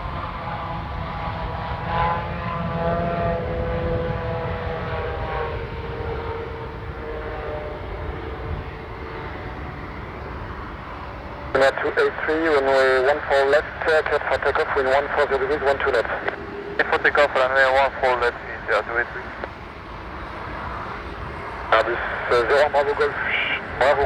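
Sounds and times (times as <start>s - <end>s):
jet landing rumble and whine: 0.0s - 24.0s.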